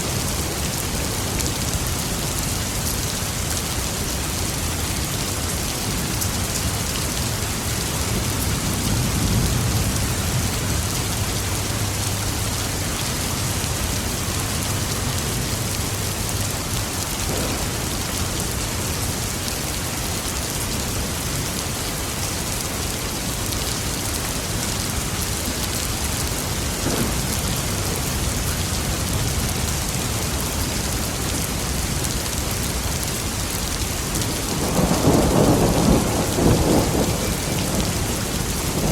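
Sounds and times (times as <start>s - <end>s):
heavy rain hissing: 0.0s - 38.9s
distant thunder rumbling: 17.2s - 19.0s, 26.7s - 29.6s, 34.5s - 38.9s.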